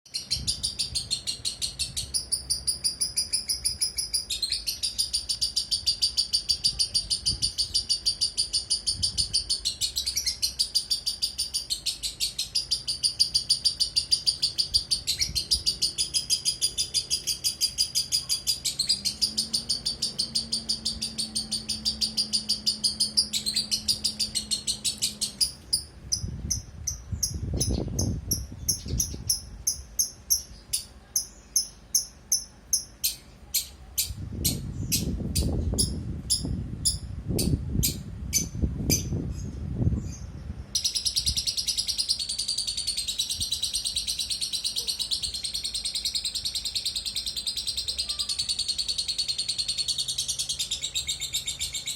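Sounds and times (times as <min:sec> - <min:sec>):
bird chirping rapidly: 0:00.1 - 0:51.9
low rumbling noise: 0:33.3 - 0:41.3.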